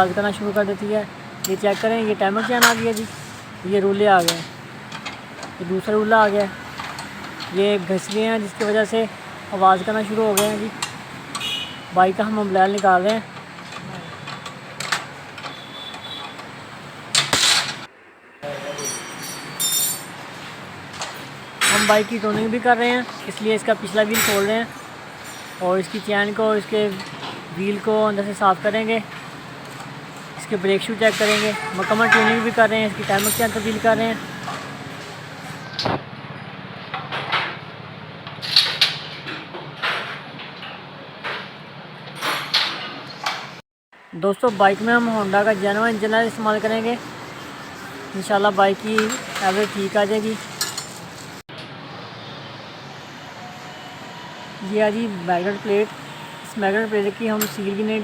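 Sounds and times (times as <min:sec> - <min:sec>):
metal tools scraping and rattling: 0:01.4 - 0:09.0, 0:18.7 - 0:27.8, 0:30.5 - 0:34.7, 0:45.3 - 0:51.4
light metallic clinks: 0:18.8 - 0:20.2.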